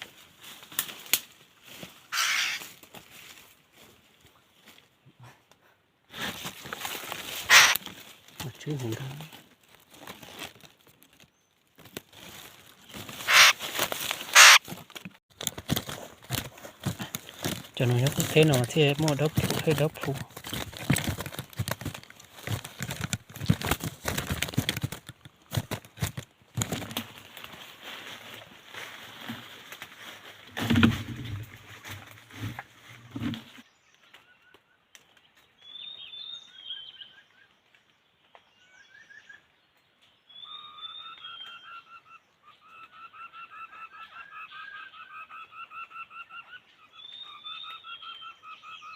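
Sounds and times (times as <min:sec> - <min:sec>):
wings flapping: 0:02.1 - 0:02.6, 0:07.2 - 0:07.9, 0:12.9 - 0:14.7, 0:15.5 - 0:27.3
bird calling: 0:02.1 - 0:02.7, 0:07.4 - 0:07.8, 0:12.8 - 0:13.6, 0:14.3 - 0:14.6, 0:40.3 - 0:48.9.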